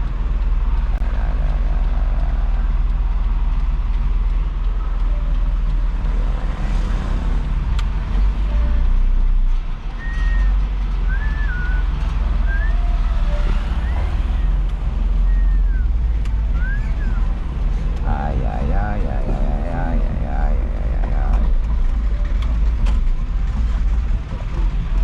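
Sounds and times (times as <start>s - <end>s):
diesel truck engine running: 0.0s - 8.5s, 13.6s - 24.6s.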